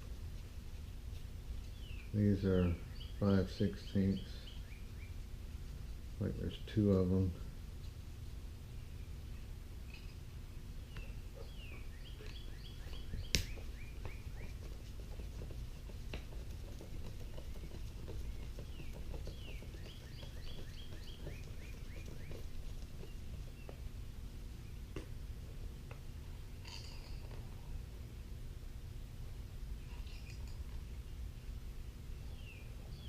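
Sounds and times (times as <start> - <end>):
steady low hum: 0.0 - 33.0
songbird chirping: 1.1 - 25.3, 29.4 - 33.0.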